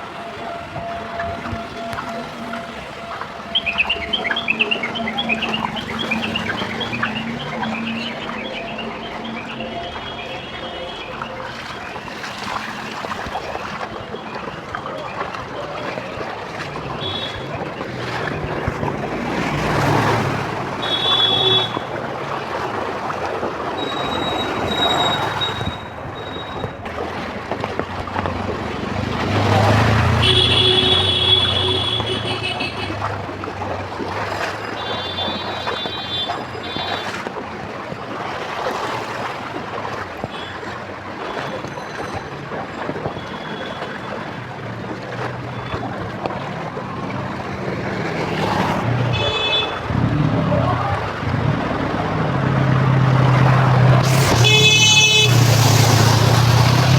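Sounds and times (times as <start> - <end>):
traffic passing: 0.0 - 56.9
heavy rain: 45.5 - 56.9.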